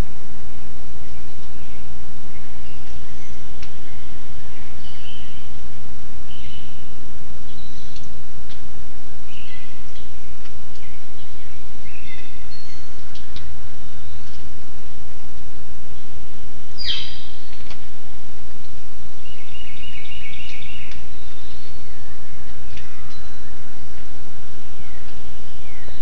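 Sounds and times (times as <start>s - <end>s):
loud steady outdoor hiss: 0.0s - 26.0s
small birds chirping: 0.9s - 15.0s, 15.8s - 26.0s.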